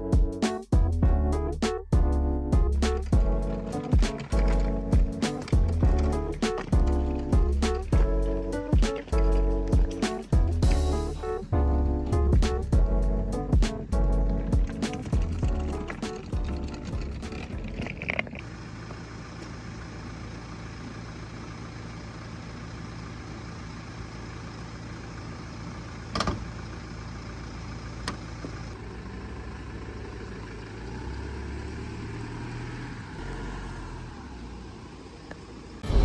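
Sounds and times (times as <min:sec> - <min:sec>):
vehicle engine humming: 0:00.8 - 0:36.0
sharp clicks: 0:02.8 - 0:10.4, 0:13.5 - 0:18.4.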